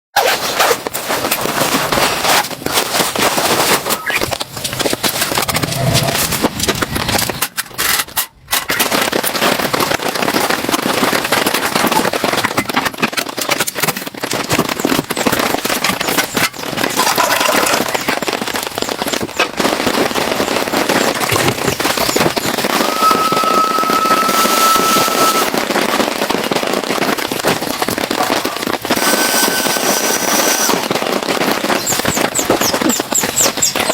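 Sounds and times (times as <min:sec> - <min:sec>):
heavy rain on a tent: 0:00.2 - 0:33.9.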